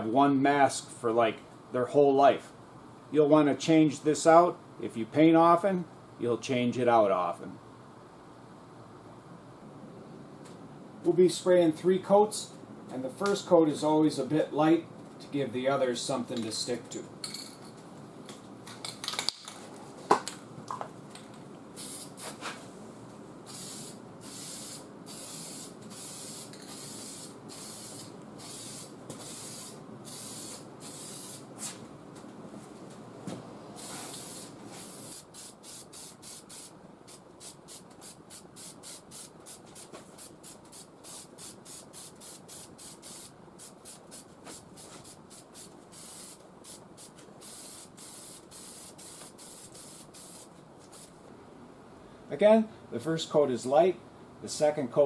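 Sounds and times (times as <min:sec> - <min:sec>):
aerosol can spraying bursts: 0:21.8 - 0:22.4, 0:23.5 - 0:31.5, 0:33.8 - 0:51.1.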